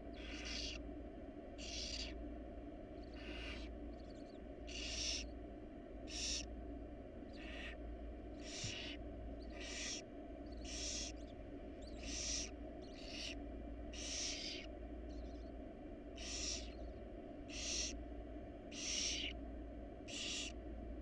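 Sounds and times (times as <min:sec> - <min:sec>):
steady low hum: 0:00.0 - 0:21.0
owl nestlings hissing calls: 0:00.1 - 0:00.8, 0:01.6 - 0:02.2, 0:02.9 - 0:05.4, 0:06.0 - 0:06.5, 0:07.3 - 0:18.0, 0:18.7 - 0:19.4, 0:20.1 - 0:20.6.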